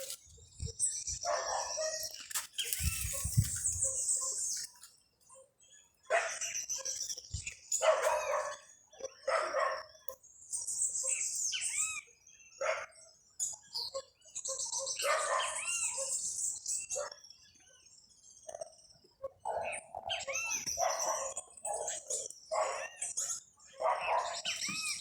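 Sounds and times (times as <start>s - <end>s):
harsh low bird calls: 0.0s - 4.7s
birds chirping: 0.0s - 25.0s.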